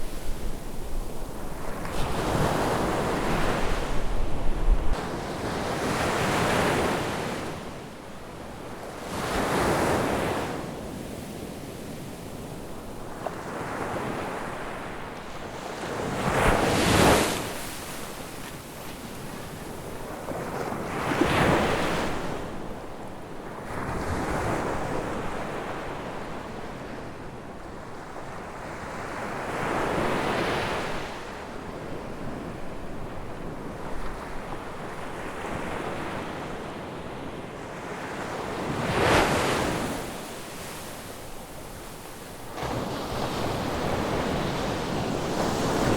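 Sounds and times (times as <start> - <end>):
ocean waves breaking on beach: 0.0 - 8.0, 8.7 - 22.7, 33.4 - 45.9.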